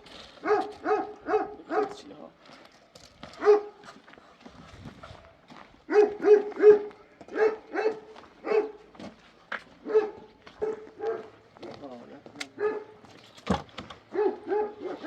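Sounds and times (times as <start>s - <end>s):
dog barking: 0.4s - 2.1s, 3.4s - 3.9s, 5.8s - 8.9s, 9.8s - 13.1s, 14.0s - 15.0s.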